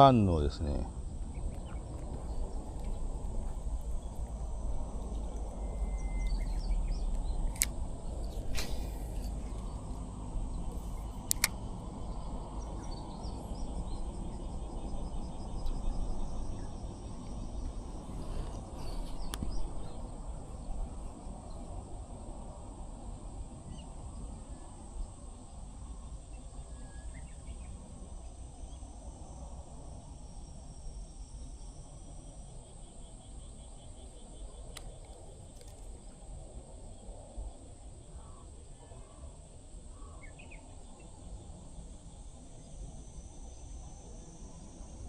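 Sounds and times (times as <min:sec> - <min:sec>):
high hiss: 0:00.0 - 0:13.9
bird chirp: 0:00.0 - 0:21.8, 0:39.9 - 0:41.4
sharp clicks: 0:06.2 - 0:09.8, 0:10.7 - 0:11.6.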